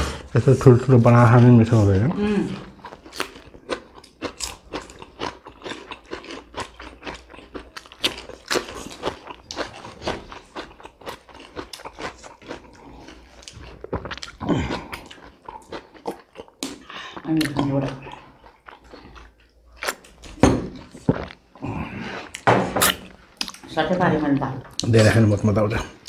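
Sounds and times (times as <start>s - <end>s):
chewing and crunching food: 0.0s - 26.0s
wet mouth clicks: 22.3s - 23.6s.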